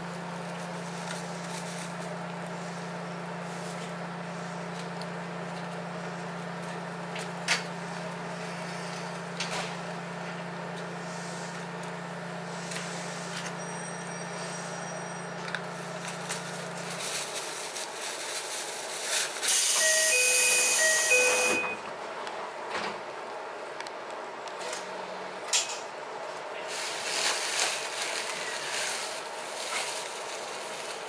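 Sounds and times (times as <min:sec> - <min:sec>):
train running hum: 0:00.0 - 0:31.0
loud hiss of air: 0:19.4 - 0:19.8
electronic beeping chime: 0:19.8 - 0:21.8.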